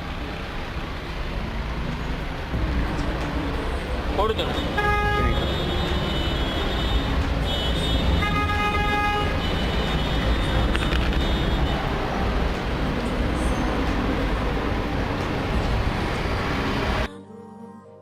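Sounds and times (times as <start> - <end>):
street traffic rumble: 0.0 - 17.1
vehicle horn: 4.5 - 12.0.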